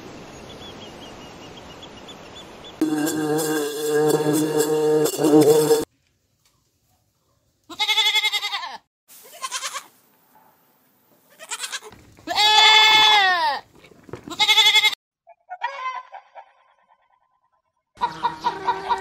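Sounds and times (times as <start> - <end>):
goats bleating: 7.7 - 9.9, 11.3 - 13.6, 14.2 - 15.0
hen clucking: 18.0 - 19.0.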